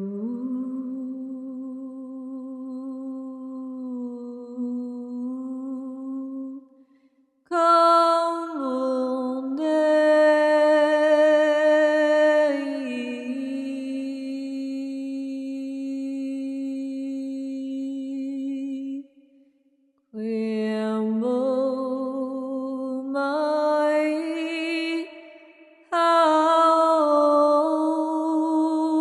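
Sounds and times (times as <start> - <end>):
person humming and chanting: 0.0 - 6.6.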